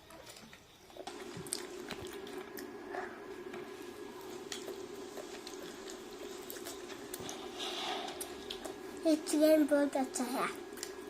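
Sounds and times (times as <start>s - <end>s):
steady low hum: 0.0s - 11.0s
wet squishy chewing: 0.1s - 9.0s, 10.6s - 11.0s.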